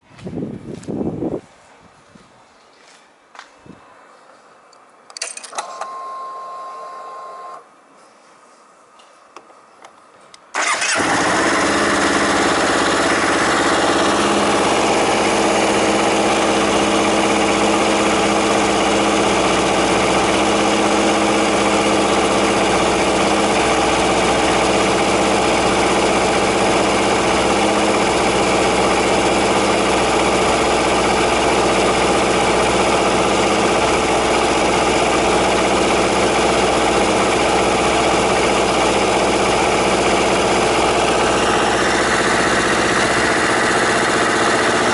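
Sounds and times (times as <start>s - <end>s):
motorcycle engine starting: 10.5s - 44.9s
motorcycle engine idling: 10.6s - 44.9s.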